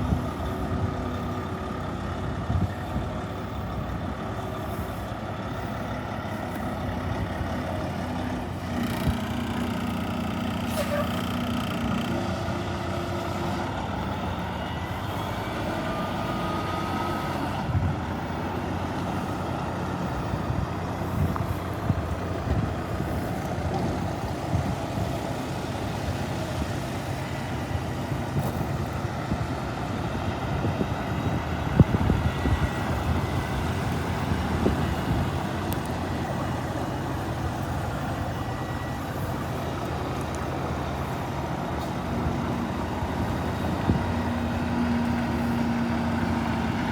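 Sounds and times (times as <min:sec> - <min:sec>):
diesel truck engine idling: 0:00.0 - 0:46.9.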